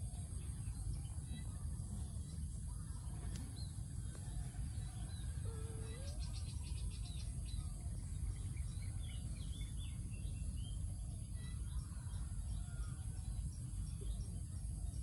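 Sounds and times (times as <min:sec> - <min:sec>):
birds chirping: 0:00.0 - 0:12.8
constant high hiss: 0:00.0 - 0:15.0
steady low rumble: 0:06.1 - 0:15.0.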